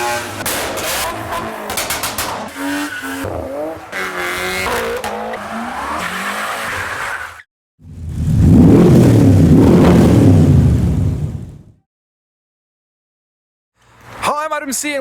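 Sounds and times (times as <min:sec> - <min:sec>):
car engines revving: 0:00.0 - 0:11.7
sharp cracks: 0:00.4 - 0:02.6.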